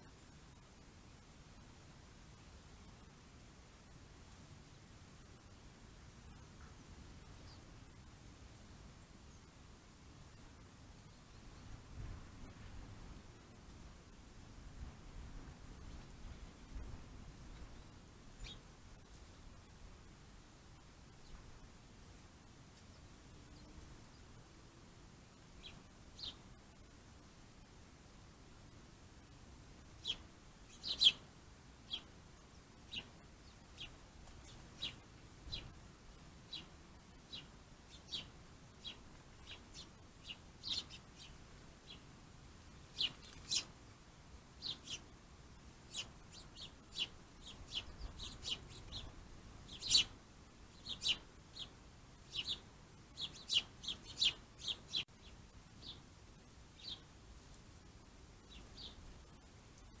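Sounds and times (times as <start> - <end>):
small birds chirping: 6.2 - 9.6, 10.3 - 13.8, 15.4 - 19.9, 20.7 - 21.7, 22.7 - 24.4, 25.2 - 27.0, 29.2 - 60.0.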